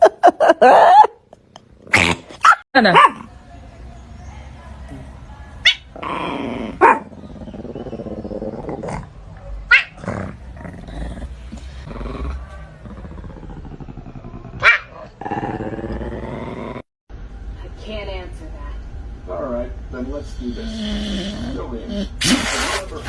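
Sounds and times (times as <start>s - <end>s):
dog growling: 5.9s - 16.9s, 20.4s - 22.4s.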